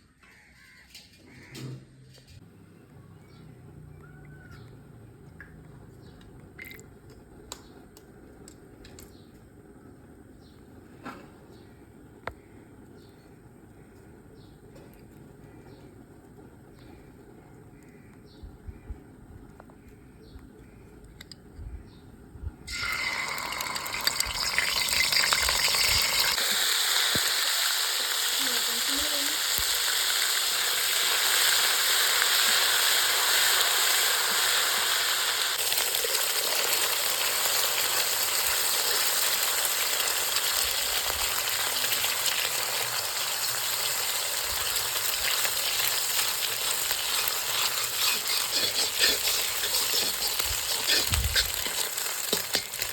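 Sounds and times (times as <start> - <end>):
food frying in hot oil: 22.7 - 52.9.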